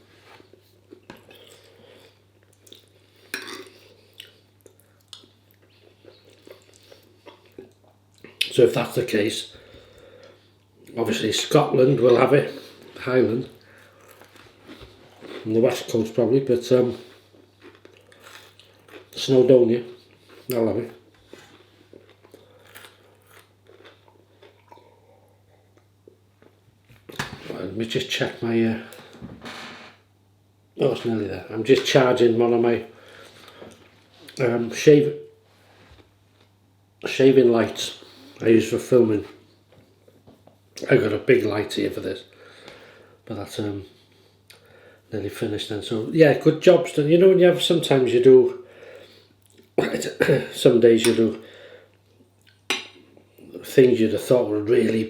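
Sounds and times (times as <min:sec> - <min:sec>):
person chewing food: 0:00.5 - 0:08.5, 0:13.7 - 0:15.5, 0:17.2 - 0:19.2, 0:21.2 - 0:27.2.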